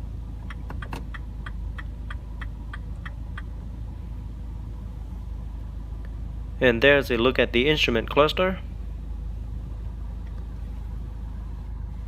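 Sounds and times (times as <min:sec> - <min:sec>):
engine idling hum: 0:00.0 - 0:12.0
turn signal ticking: 0:00.4 - 0:03.6.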